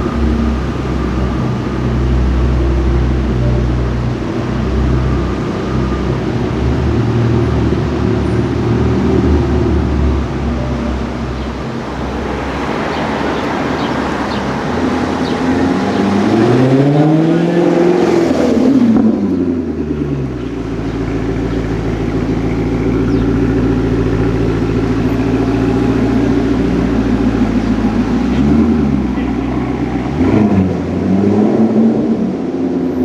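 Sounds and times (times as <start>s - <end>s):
car engine revving: 9.9s - 19.7s.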